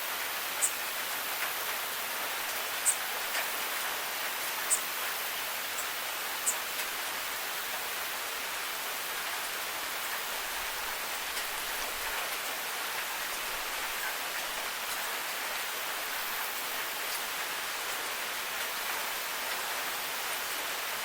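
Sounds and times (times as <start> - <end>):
steady rain falling: 0.0 - 21.0
water drip ticks: 4.4 - 4.9.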